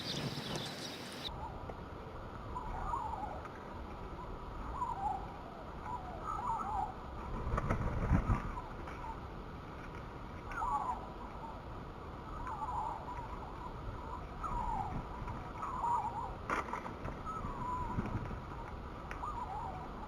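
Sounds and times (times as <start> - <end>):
sparrows chirping: 0.0 - 1.3.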